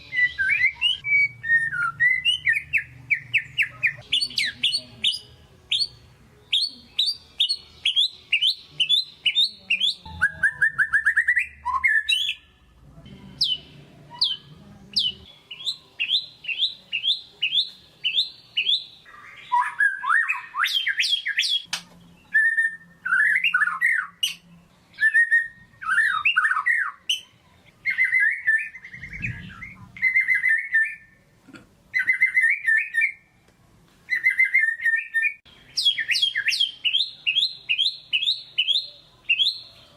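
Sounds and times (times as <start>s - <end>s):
bird singing varied song: 0.0s - 12.6s, 13.2s - 31.3s, 31.9s - 33.4s, 34.1s - 39.9s.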